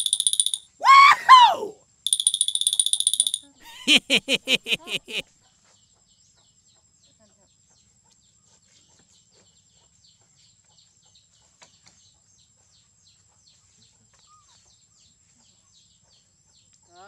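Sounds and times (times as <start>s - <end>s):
thin high tone: 0.0s - 5.2s.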